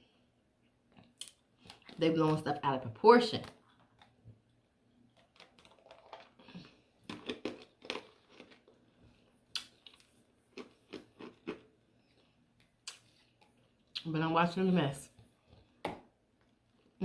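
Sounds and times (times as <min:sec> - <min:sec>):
chewing and mouth smacks: 0:03.6 - 0:08.8, 0:09.5 - 0:14.1.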